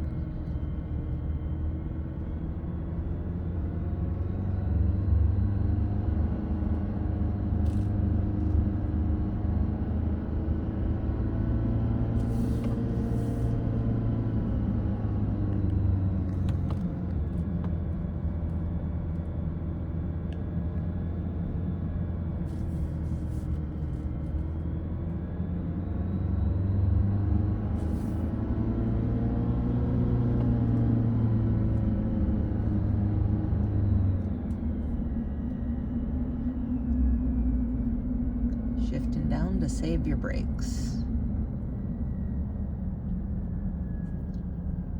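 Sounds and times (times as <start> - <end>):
car engine from inside cabin: 0.0 - 44.9
road noise: 0.0 - 44.9.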